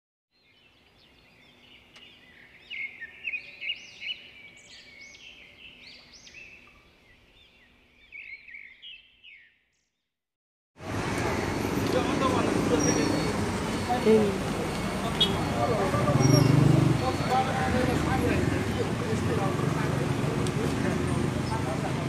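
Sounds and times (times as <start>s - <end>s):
small birds chirping: 0.4s - 10.1s, 12.6s - 19.0s.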